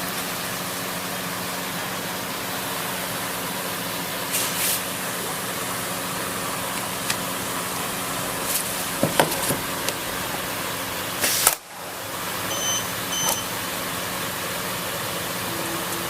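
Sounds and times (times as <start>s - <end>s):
short loud hiss: 4.3s - 4.9s
short electronic beeps: 12.5s - 13.6s.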